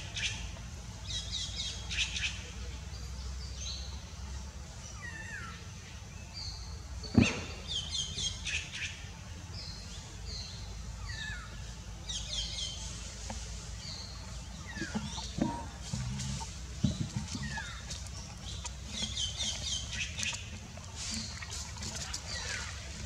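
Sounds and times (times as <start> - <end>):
birds whistling and trilling: 13.8 - 23.0.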